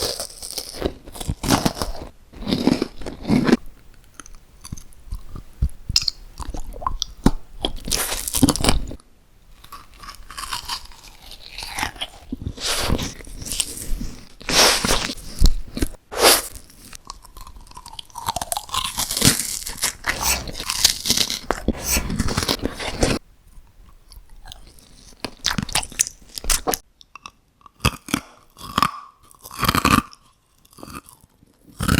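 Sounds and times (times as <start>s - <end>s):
crunchy bites and chewing: 0.0s - 23.2s, 23.9s - 31.9s.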